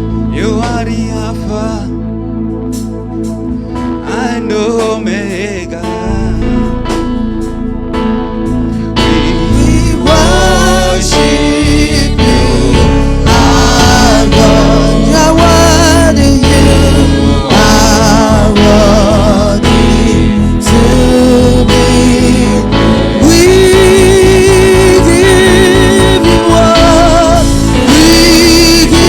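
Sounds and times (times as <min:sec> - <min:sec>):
lead singer: 0:00.0 - 0:02.7, 0:04.0 - 0:07.6, 0:08.4 - 0:29.0
band with bass and beat: 0:00.0 - 0:29.0
choir singing: 0:09.1 - 0:24.2.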